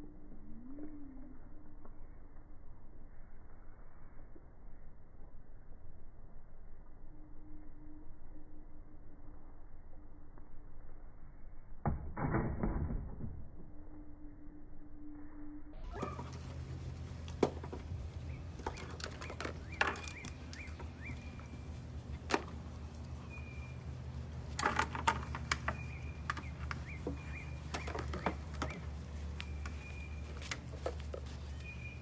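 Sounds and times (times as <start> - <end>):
steady low hum: 13.4 - 32.0
small birds chirping: 15.9 - 32.0
sharp clicks and knocks: 17.2 - 21.5, 24.4 - 31.3.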